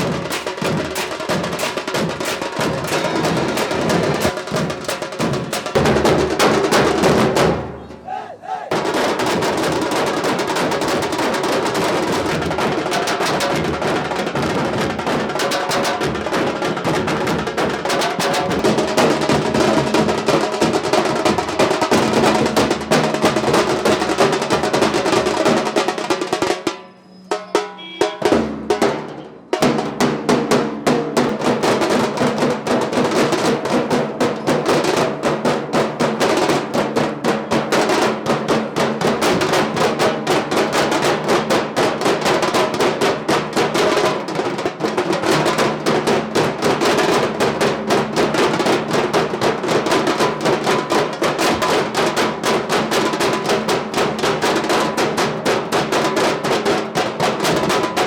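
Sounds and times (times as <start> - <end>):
group of drummers playing: 0.0 - 58.0.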